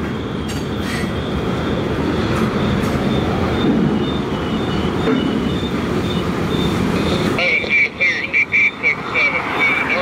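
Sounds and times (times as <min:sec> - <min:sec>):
high-pitched wheel squeal: 0:00.0 - 0:07.4
train wheels rumbling on rail: 0:00.0 - 0:07.4.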